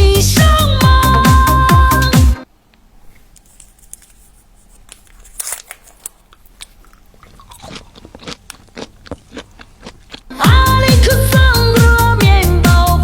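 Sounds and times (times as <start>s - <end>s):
chewing bubble gum clicks: 4.9s - 10.4s.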